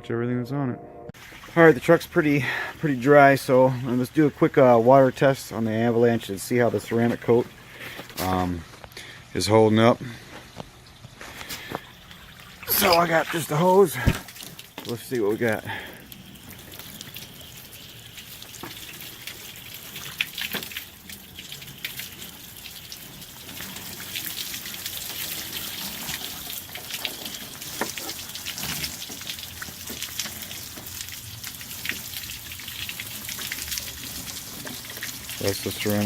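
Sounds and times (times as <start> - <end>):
hose water spraying on metal: 1.2 - 8.5, 11.4 - 36.0
water drips: 10.2 - 36.0.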